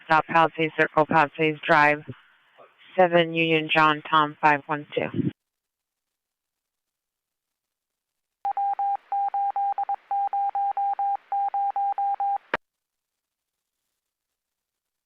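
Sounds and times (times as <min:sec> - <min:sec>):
faint radio hiss: 0:00.0 - 0:06.9
short radio beeps: 0:08.5 - 0:12.5.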